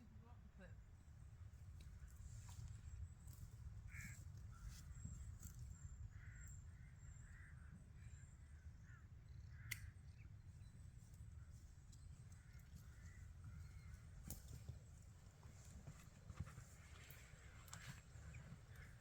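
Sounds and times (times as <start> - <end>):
distant bird calls: 3.8 - 10.8, 11.4 - 19.0.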